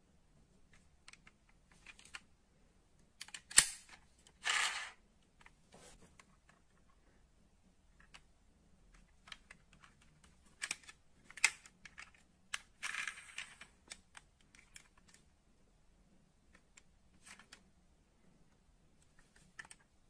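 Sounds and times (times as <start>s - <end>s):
light clicks of model car parts: 3.2s - 7.0s, 8.9s - 15.3s, 19.0s - 19.9s.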